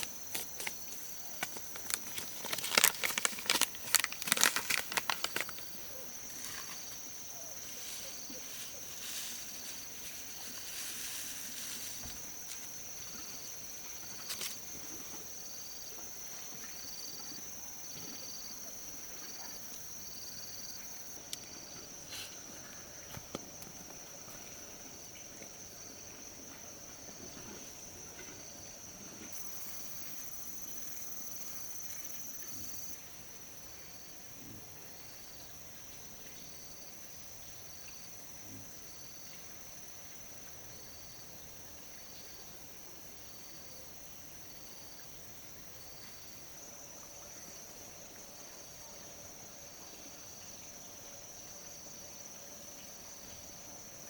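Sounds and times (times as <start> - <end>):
insect high-pitched trill: 0.0 - 15.9
insect chirping: 0.0 - 54.0.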